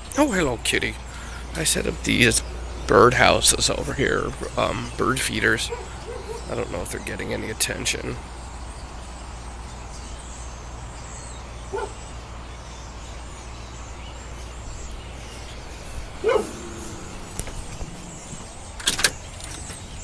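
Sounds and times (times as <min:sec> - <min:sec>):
dog barking: 0:05.7 - 0:06.5, 0:11.7 - 0:12.0, 0:16.2 - 0:17.4.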